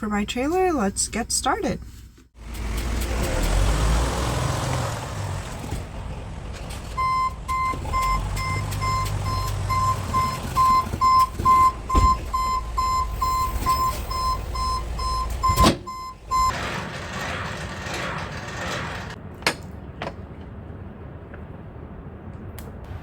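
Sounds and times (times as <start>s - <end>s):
vehicle back-up alarm beeping: 6.8s - 16.6s.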